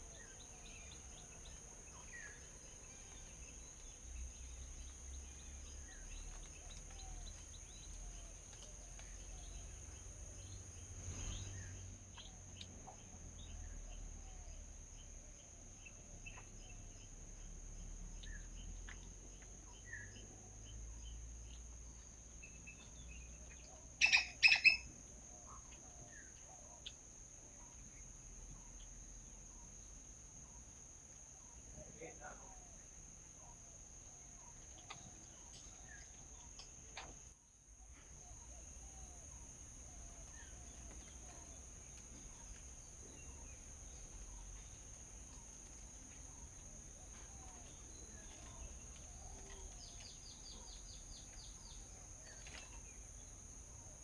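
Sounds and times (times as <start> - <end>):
small birds chirping: 0.0 - 54.0
loud harsh bird calls: 24.0 - 24.9.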